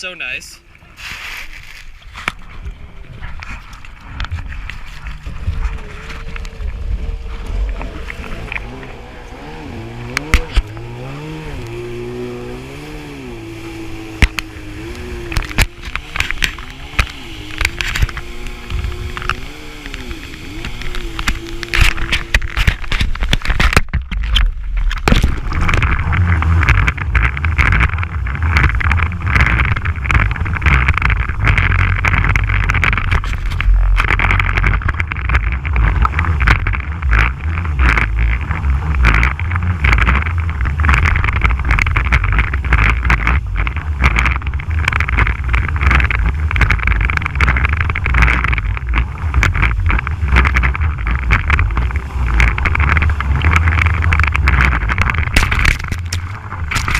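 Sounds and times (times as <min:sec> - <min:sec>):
wind buffeting microphone: 0:02.0 - 0:56.9
jet ski engine running hard: 0:05.0 - 0:23.3.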